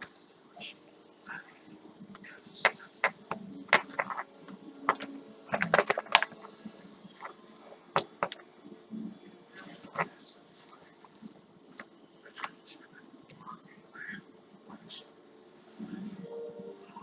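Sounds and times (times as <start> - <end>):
packaging crinkling and clicking: 3.0 - 8.4, 9.7 - 10.2.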